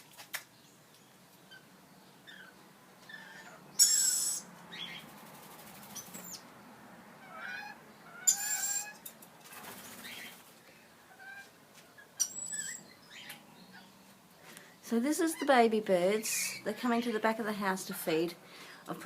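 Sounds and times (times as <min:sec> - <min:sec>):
lorikeets chirping: 0:00.6 - 0:05.1, 0:05.8 - 0:06.5, 0:07.2 - 0:09.0, 0:09.9 - 0:10.4, 0:11.9 - 0:14.1
lorikeet harsh screech: 0:03.1 - 0:05.0, 0:07.3 - 0:09.0.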